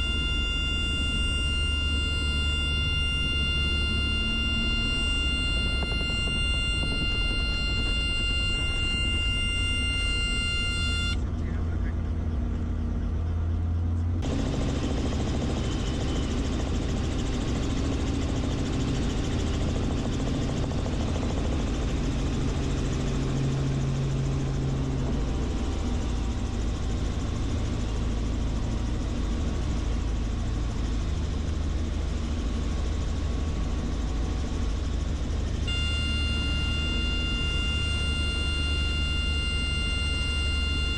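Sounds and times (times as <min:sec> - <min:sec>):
steady multi-note tone: 0:00.0 - 0:11.2, 0:35.5 - 0:40.9
helicopter rotor and engine drone: 0:00.0 - 0:40.9.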